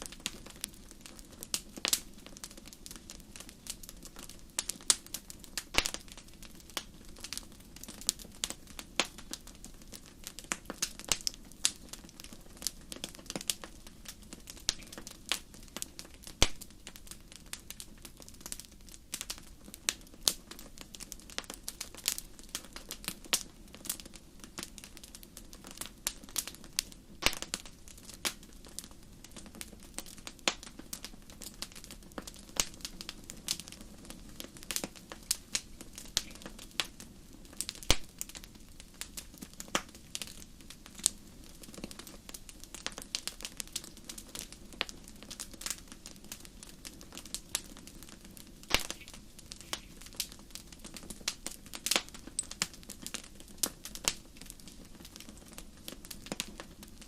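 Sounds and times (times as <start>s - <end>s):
wood fire crackling in fireplace: 0.0s - 57.0s.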